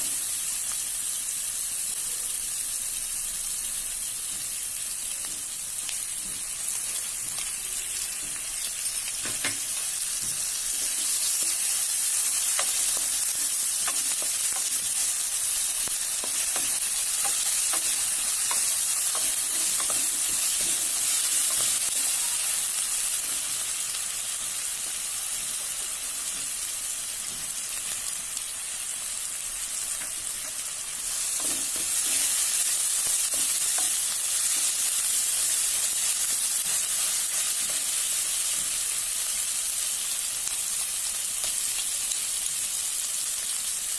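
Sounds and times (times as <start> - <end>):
hot oil sizzling in a pan: 0.0 - 43.9
spatula tapping and scraping: 9.1 - 22.0, 30.0 - 34.8.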